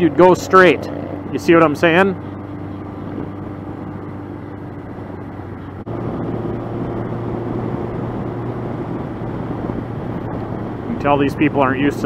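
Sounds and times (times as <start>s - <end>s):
motorcycle engine humming: 0.0s - 12.0s.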